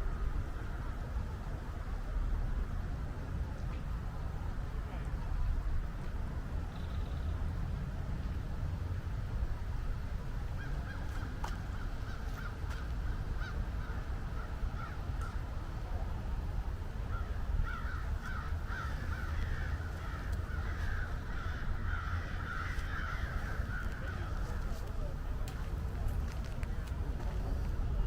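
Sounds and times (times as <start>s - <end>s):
steady low rumble: 0.0s - 28.0s
flock of birds calling: 17.1s - 25.1s.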